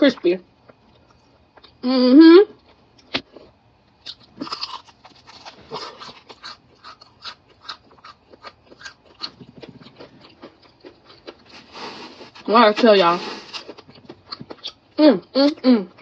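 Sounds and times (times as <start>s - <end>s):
crunching bites and chewing: 2.6s - 12.5s, 13.2s - 14.8s.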